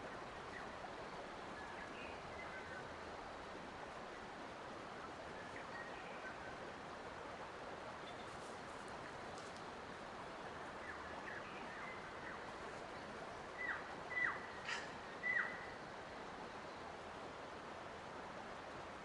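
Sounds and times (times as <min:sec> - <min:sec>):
background hiss: 0:00.0 - 0:19.0
bird calling: 0:13.6 - 0:15.8.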